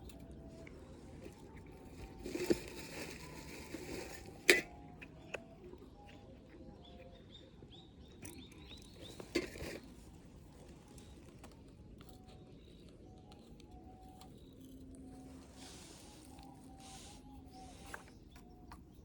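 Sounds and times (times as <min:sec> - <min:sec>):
rustling: 0:00.0 - 0:04.7
small birds chirping: 0:00.0 - 0:19.0.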